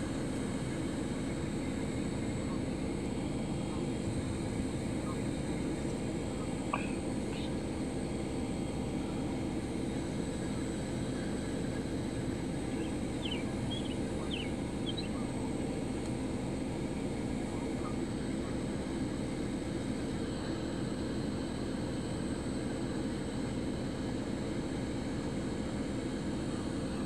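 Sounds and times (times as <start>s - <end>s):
faint bird chirps: 6.7s - 7.6s, 12.7s - 15.3s.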